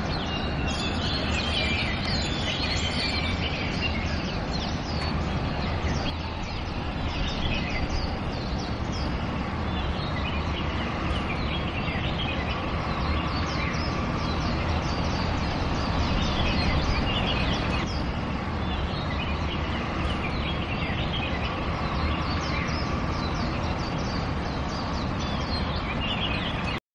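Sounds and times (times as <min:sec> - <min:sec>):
birds chirping: 0:00.0 - 0:26.8.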